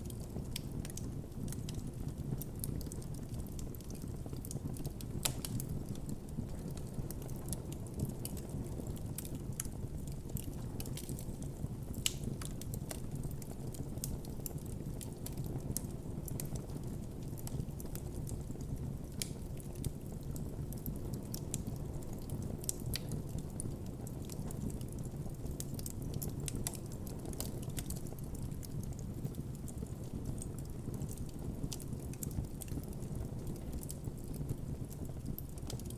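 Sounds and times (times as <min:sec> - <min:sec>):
burning wood crackling: 0:00.0 - 0:35.9
low rumble of flames: 0:00.0 - 0:35.9.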